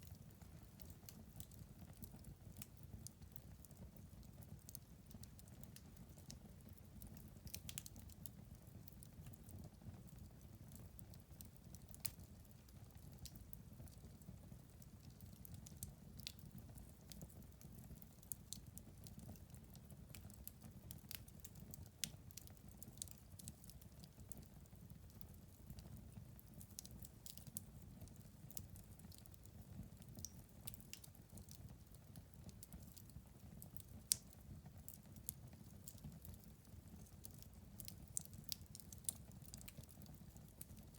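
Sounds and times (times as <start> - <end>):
fire crackling in fireplace: 0.0 - 40.9.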